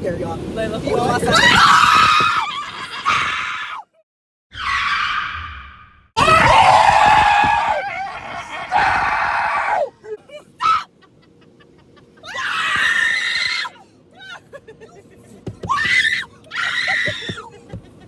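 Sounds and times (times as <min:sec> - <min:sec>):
people screaming: 0:01.2 - 0:03.9, 0:04.5 - 0:09.9, 0:10.6 - 0:10.9, 0:12.2 - 0:14.4, 0:15.7 - 0:17.5.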